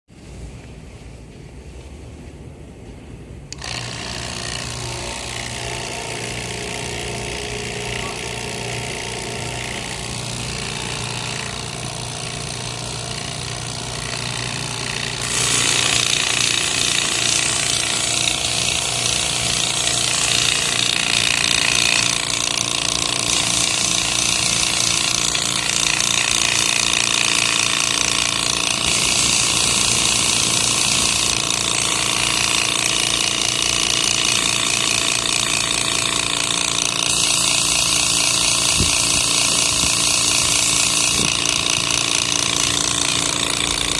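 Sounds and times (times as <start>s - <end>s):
cleaning machine rattling hum: 3.5s - 43.9s
hissing spray: 23.2s - 36.2s, 37.1s - 43.0s.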